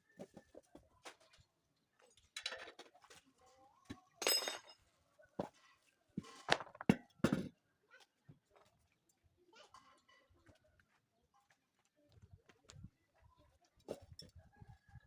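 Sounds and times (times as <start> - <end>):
metal tools clinking: 4.2 - 4.8.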